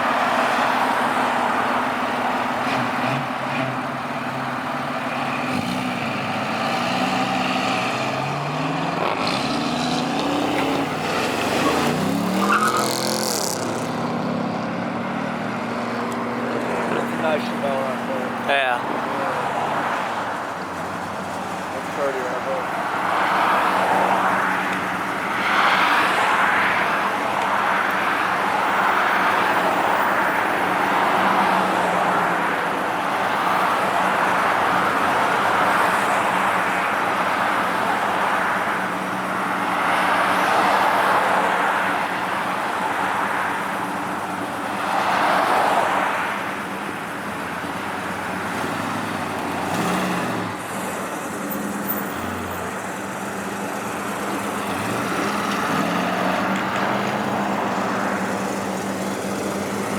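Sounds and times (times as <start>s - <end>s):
cars rolling past: 0.0s - 59.9s.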